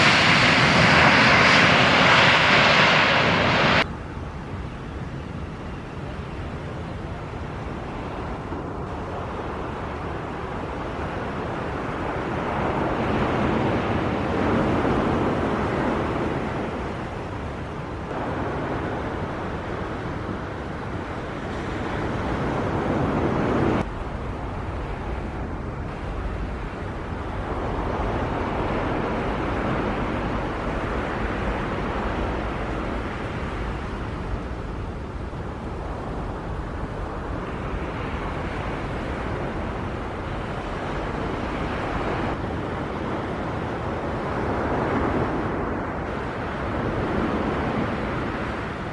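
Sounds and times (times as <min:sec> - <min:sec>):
jet engine rushing: 0:00.0 - 0:03.9
wind on microphone: 0:00.0 - 0:48.9.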